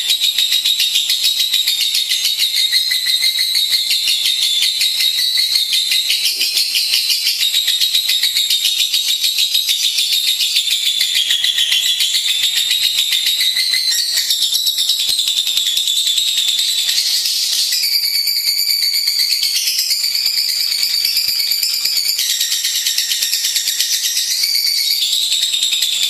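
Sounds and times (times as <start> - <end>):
lovebird chattering: 4.1 - 8.7.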